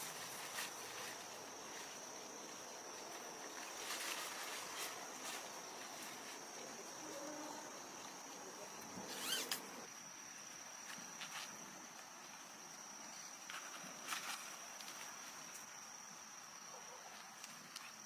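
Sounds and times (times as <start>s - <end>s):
soft rustles and clicks: 0.0s - 7.3s, 13.1s - 15.7s
insects trilling: 0.0s - 18.0s.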